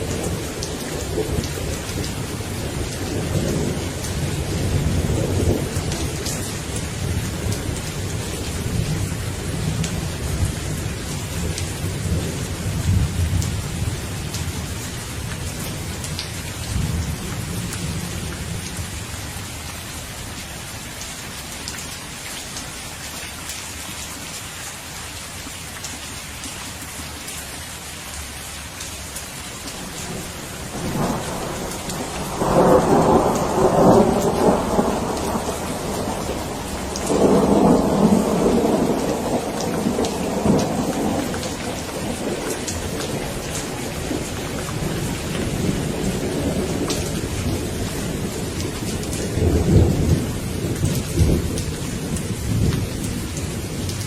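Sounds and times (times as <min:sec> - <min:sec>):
steady rain falling: 0:00.0 - 0:54.0
rolling thunder: 0:29.8 - 0:54.0.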